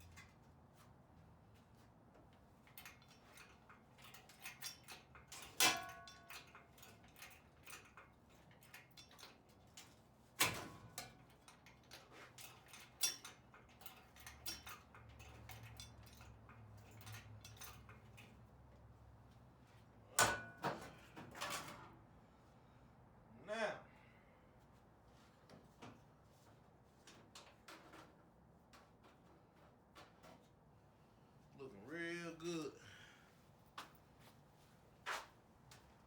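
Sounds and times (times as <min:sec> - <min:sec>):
metal clicks and clinks: 0:02.7 - 0:09.9, 0:10.9 - 0:18.4.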